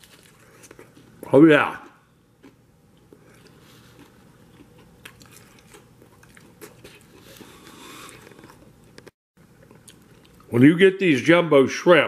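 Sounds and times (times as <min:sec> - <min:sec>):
faint chewing: 0:00.0 - 0:01.3, 0:02.4 - 0:10.5.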